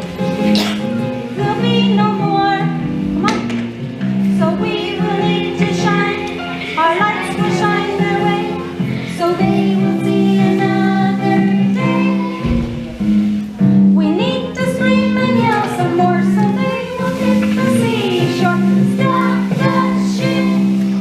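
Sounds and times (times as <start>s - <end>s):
instrumental accompaniment: 0.0s - 21.0s
children singing: 4.4s - 21.0s.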